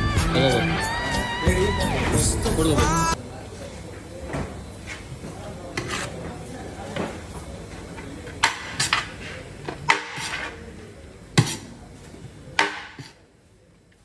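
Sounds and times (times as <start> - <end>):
metal dishes clattering: 8.4 - 10.6.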